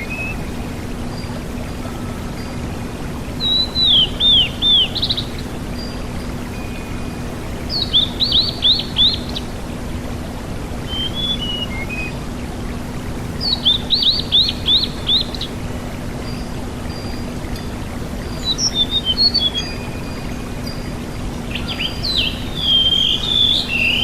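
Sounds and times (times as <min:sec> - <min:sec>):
songbird whistling: 0:03.4 - 0:05.4, 0:10.9 - 0:12.2, 0:18.4 - 0:20.2, 0:21.5 - 0:24.0.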